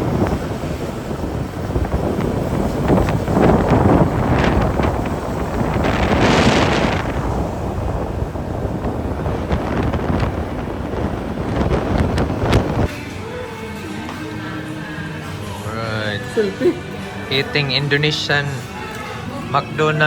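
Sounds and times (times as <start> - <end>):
wind buffeting microphone: 0.0 - 12.9
scooter engine and road noise: 0.0 - 20.0.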